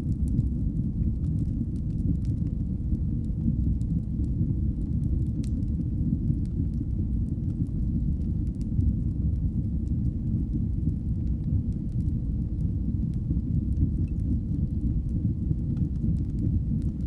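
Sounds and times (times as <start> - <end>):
fire crackles and pops: 0.0 - 17.0
wood fire roaring: 0.0 - 17.0.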